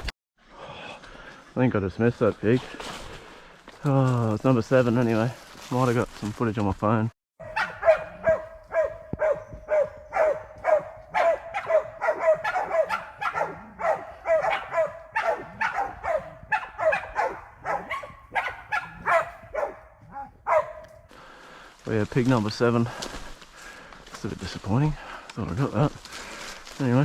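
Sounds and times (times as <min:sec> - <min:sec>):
dogs barking: 0:07.4 - 0:21.1.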